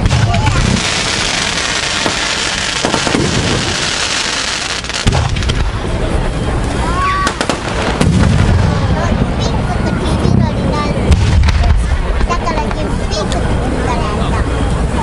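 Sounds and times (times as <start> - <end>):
sharp firework bang: 0.0 - 5.8, 7.2 - 9.0, 11.1 - 12.3
fireworks crackling: 0.0 - 13.8
low booming shell bursts: 5.0 - 6.0, 7.3 - 8.9.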